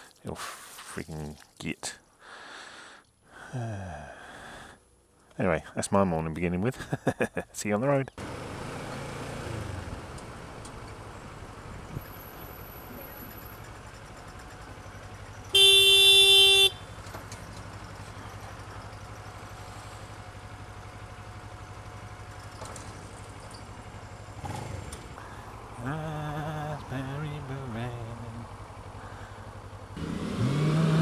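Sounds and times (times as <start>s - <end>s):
motorcycle running: 8.2s - 31.0s
vehicle horn blast: 15.5s - 16.9s.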